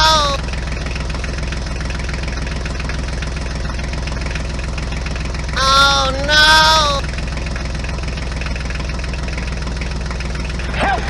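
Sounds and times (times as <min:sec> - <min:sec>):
high-pitched voice calling out: 0:00.0 - 0:00.4, 0:05.6 - 0:07.1
engine idling drone: 0:00.0 - 0:11.0.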